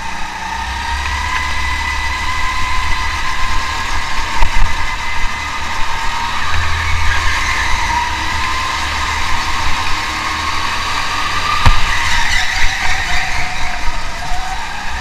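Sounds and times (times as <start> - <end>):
car engine running hard: 0.0 - 15.0
road and tyre noise: 0.0 - 15.0.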